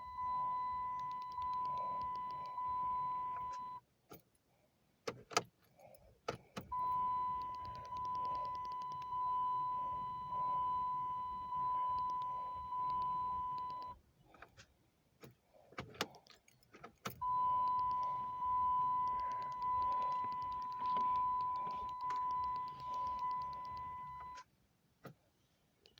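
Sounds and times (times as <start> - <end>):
car dashboard warning chime: 0.0 - 3.8, 6.7 - 14.0, 17.2 - 24.4
sharp clicks: 0.9 - 2.6, 6.3 - 9.2, 11.9 - 14.5, 15.2 - 24.4
keys rattling: 15.2 - 17.2.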